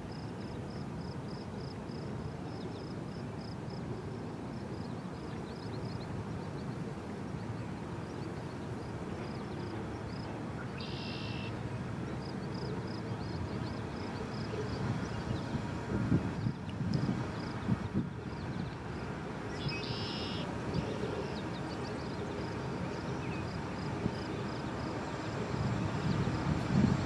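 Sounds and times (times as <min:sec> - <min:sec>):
bird chirping: 0:19.5 - 0:20.5
distant freight train rumble: 0:20.4 - 0:27.0.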